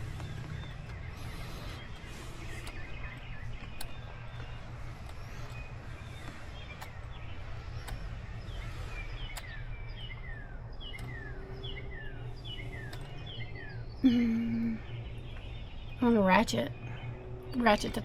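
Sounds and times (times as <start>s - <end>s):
bird chirping: 0.0s - 18.0s
low background rumble: 0.0s - 18.0s
faint sharp clicks: 1.7s - 8.5s, 9.3s - 9.6s, 10.8s - 11.3s.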